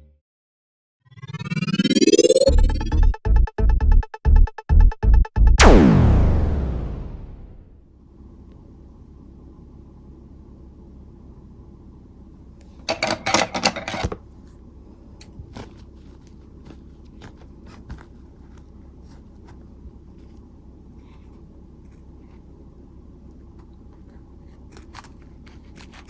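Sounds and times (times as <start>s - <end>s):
mask crinkly rustling: 23.1s - 26.0s
small clicks and scrapes: 23.2s - 26.0s.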